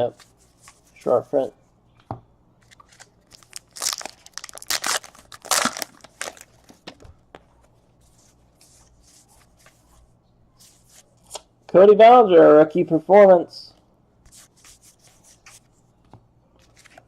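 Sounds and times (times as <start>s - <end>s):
cards rustling: 2.6s - 7.0s, 16.6s - 17.0s
wrapper crinkling and tearing: 2.8s - 6.6s.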